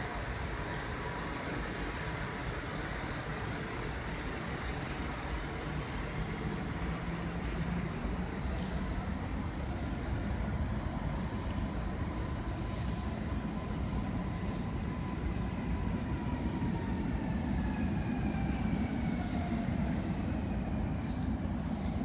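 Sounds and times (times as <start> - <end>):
train rumble with falling whine: 0.0 - 22.0.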